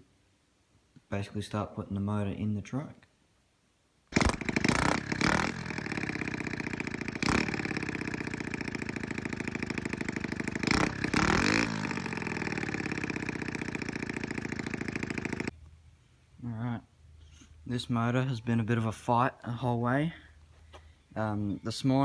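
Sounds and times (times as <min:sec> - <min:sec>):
quad engine revving: 0:04.1 - 0:15.6.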